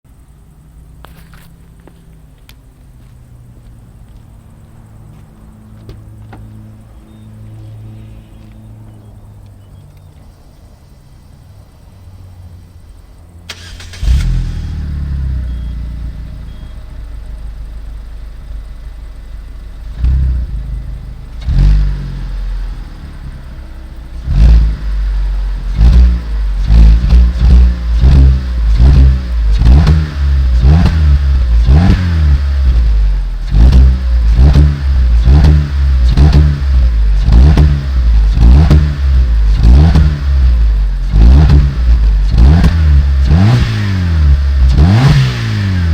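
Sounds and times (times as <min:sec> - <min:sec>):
car engine starting and revving: 0:00.4 - 0:45.9.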